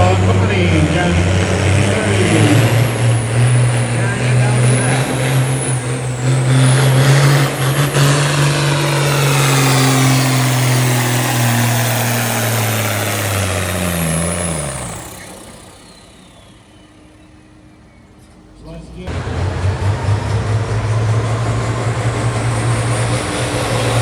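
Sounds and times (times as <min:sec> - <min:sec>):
high whine: 0:00.0 - 0:17.1
tractor engine running hard: 0:00.0 - 0:24.0.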